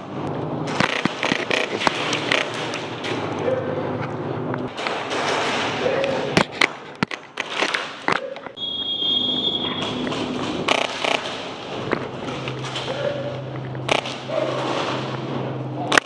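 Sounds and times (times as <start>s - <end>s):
steady background noise: 0.0s - 16.0s
airsoft gun shots: 10.4s - 11.6s, 13.9s - 15.1s.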